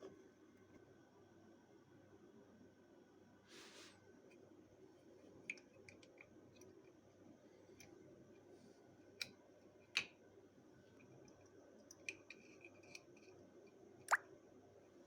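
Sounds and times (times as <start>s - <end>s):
short soft hiss: 3.5s - 4.0s.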